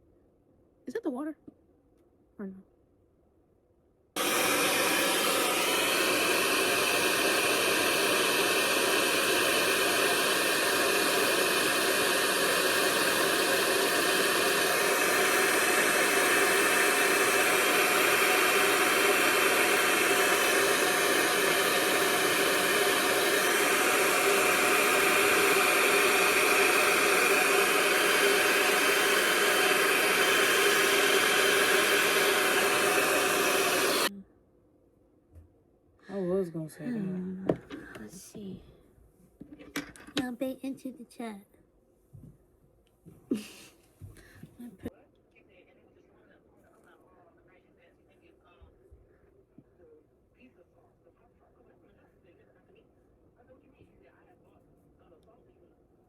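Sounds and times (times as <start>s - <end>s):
hair dryer blowing: 4.2s - 34.1s, 43.3s - 44.6s.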